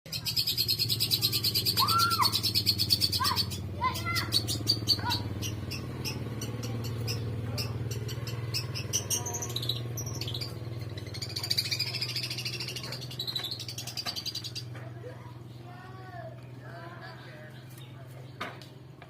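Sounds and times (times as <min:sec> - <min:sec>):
sharp bird calls: 0:00.1 - 0:15.0
bird singing chattering trill: 0:00.1 - 0:15.6.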